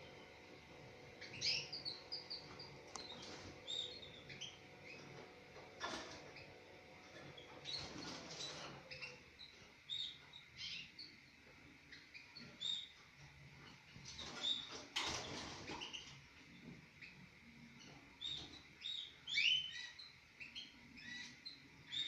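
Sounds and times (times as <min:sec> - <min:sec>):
canaries chirping: 0:00.0 - 0:22.0.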